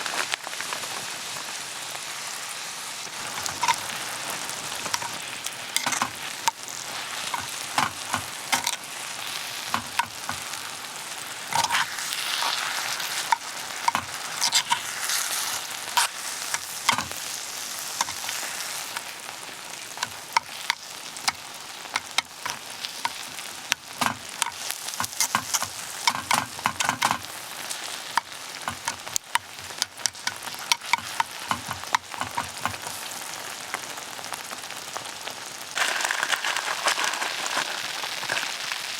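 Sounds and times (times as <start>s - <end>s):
food sizzling on a griddle: 0.0s - 38.9s
metal utensils scraping a griddle: 3.2s - 4.0s, 4.8s - 9.0s, 11.5s - 17.3s, 18.0s - 18.8s, 22.0s - 33.1s, 35.8s - 38.6s.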